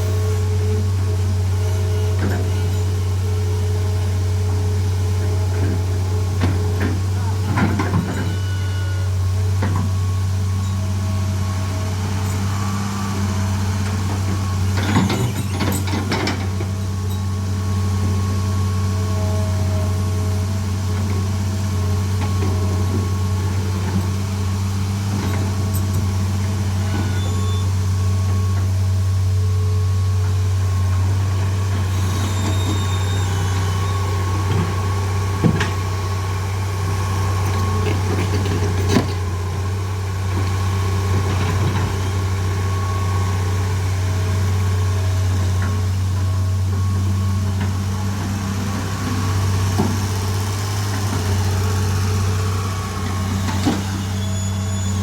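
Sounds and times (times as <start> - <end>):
diesel engine idling: 27.7 - 55.0.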